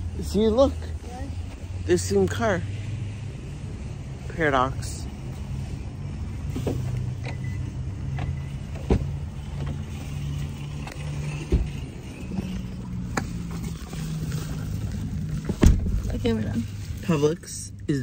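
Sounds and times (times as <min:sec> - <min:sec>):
car door opening: 0:06.5 - 0:10.2, 0:10.8 - 0:13.6, 0:15.4 - 0:16.2.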